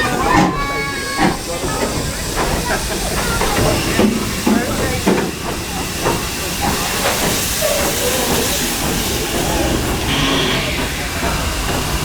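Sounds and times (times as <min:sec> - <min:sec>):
low rumble of train: 0:00.0 - 0:12.0
steam hissing: 0:00.0 - 0:12.0.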